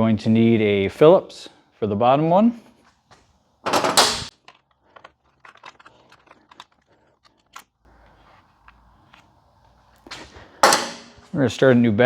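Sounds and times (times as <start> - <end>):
hand tools clattering: 3.7 - 4.3, 10.1 - 11.4.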